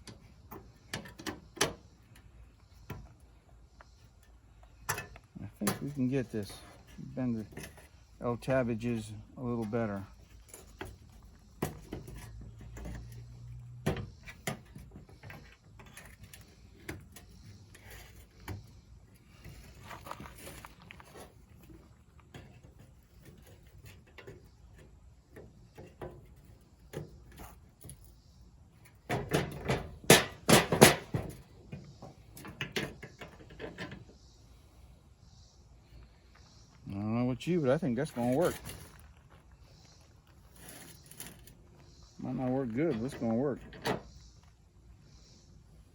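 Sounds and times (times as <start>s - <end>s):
louder knocks and rattles: 29.1s - 31.5s.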